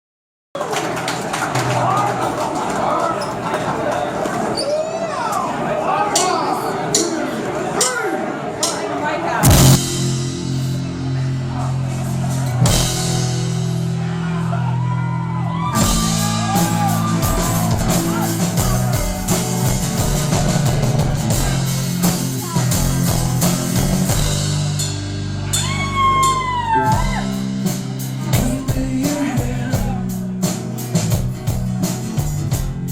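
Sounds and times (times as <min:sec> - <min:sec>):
cymbal crashes: 0:09.4 - 0:11.6
live rock band playing: 0:09.4 - 0:32.9.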